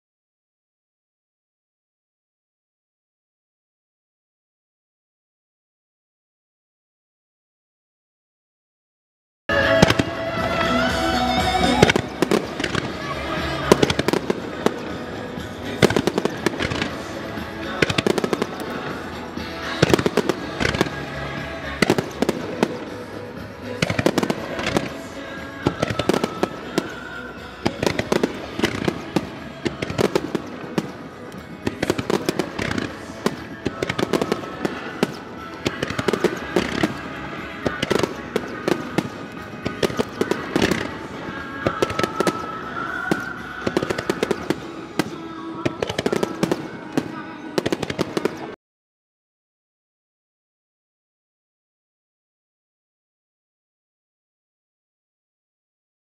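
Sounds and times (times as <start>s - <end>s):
fireworks bursting and cracking: 9.5s - 48.6s
music playing: 9.5s - 48.6s.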